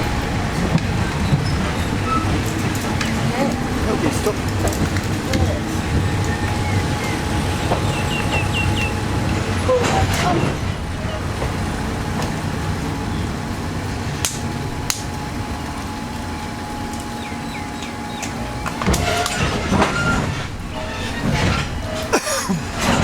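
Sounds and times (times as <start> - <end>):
train engine rumble with hum: 0.0 - 23.0
clatter and knocks: 18.2 - 23.0.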